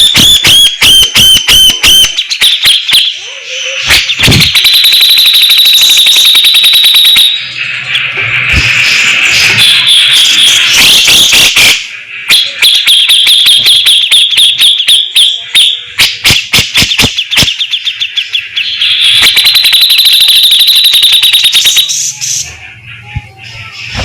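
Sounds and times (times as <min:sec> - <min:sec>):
bird sharp clicking notes: 0:16.0 - 0:17.9.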